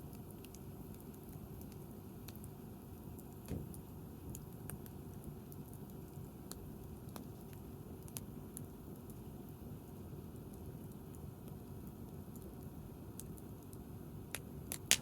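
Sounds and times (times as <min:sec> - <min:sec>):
bonfire crackling: 0:03.2 - 0:09.4, 0:10.2 - 0:15.0
dull thump: 0:03.5 - 0:03.8.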